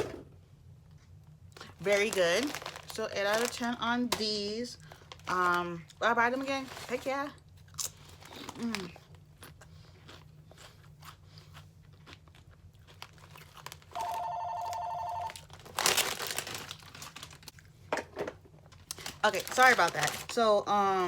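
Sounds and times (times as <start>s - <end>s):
loud rustle and crinkle: 1.9s - 3.7s, 4.8s - 5.6s, 6.3s - 7.3s, 15.3s - 17.5s, 18.8s - 20.6s
chewing potato chips: 7.4s - 17.8s, 18.7s - 20.4s
phone ringing two-tone trill: 14.0s - 15.4s.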